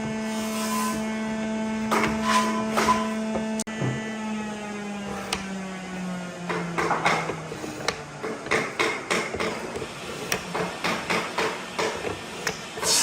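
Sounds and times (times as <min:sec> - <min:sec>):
hammer knocking on wood: 0:06.4 - 0:12.1.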